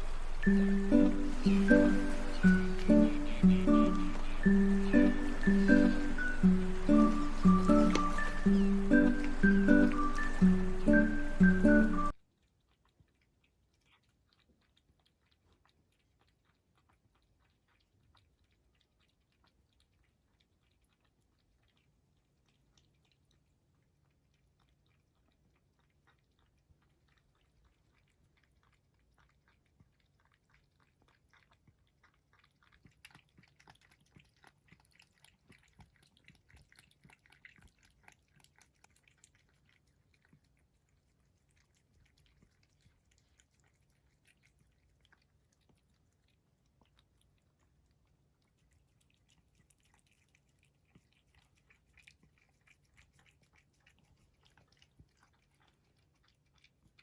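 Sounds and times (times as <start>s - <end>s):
cat chewing wetly: 0.0s - 57.0s.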